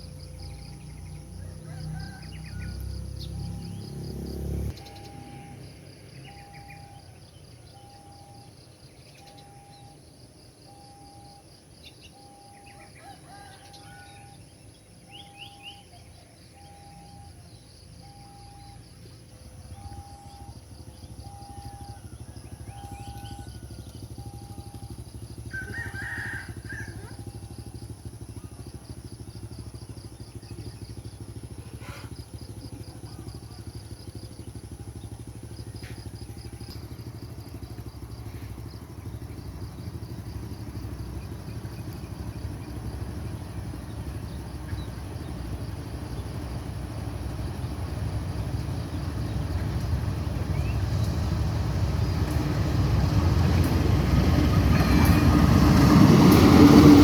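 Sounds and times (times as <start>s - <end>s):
faint insect chirr: 0.0s - 57.0s
bird call: 4.7s - 10.0s, 19.6s - 27.6s
regular beeping tone: 4.7s - 12.8s, 16.5s - 22.0s, 24.1s - 25.2s
train rumble: 16.5s - 57.0s.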